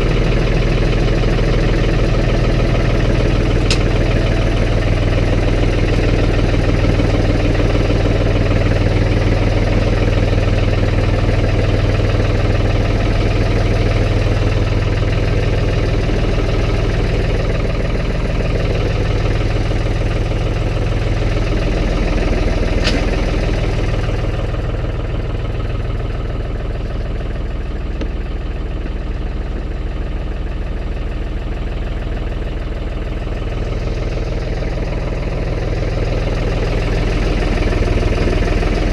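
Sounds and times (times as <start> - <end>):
vehicle engine running: 0.0 - 38.9
sharp click: 3.7 - 4.0, 22.8 - 23.1.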